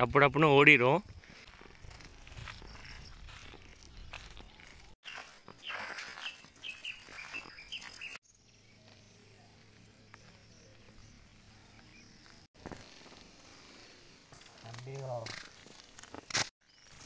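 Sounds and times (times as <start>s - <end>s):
bird chirping: 2.6s - 12.5s.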